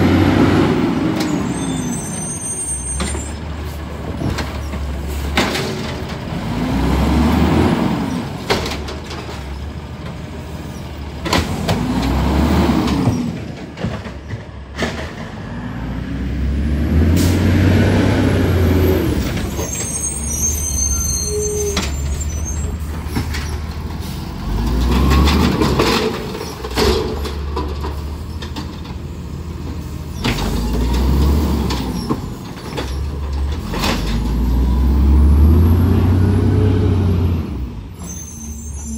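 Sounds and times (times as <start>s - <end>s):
diesel truck engine revving: 0.0s - 2.0s, 2.6s - 8.5s, 9.8s - 13.4s, 15.3s - 28.2s, 29.3s - 32.4s, 33.0s - 38.9s
clanks and knocks: 12.9s - 15.4s.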